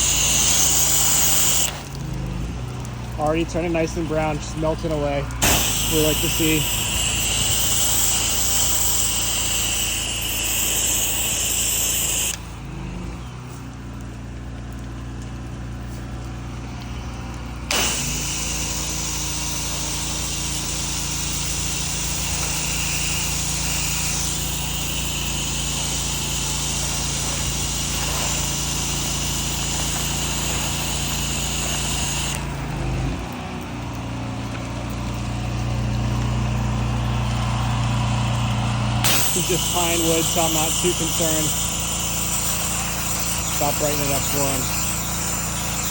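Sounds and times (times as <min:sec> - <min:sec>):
engine running steadily: 0:00.0 - 0:45.9
water spray hissing: 0:00.0 - 0:45.9.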